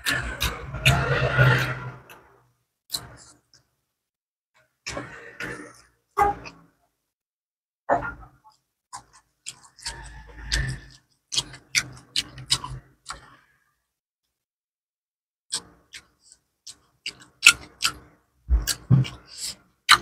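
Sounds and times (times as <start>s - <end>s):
person chewing food: 0.0s - 2.2s, 8.9s - 13.4s, 15.5s - 20.0s.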